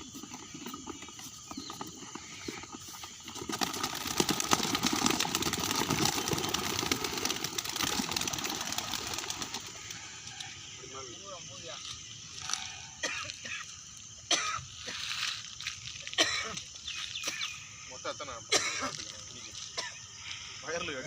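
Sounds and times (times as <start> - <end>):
bird wings flapping: 2.5 - 10.5.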